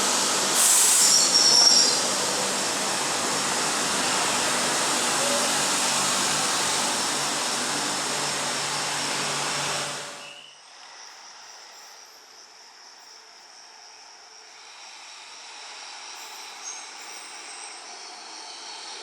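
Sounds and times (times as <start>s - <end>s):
train wheels on rails: 0.0s - 12.1s.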